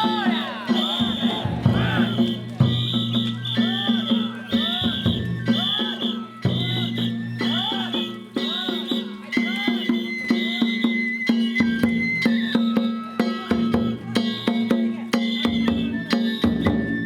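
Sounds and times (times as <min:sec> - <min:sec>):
held high note: 0:00.0 - 0:10.0
drums in quick steady beat: 0:00.0 - 0:10.7.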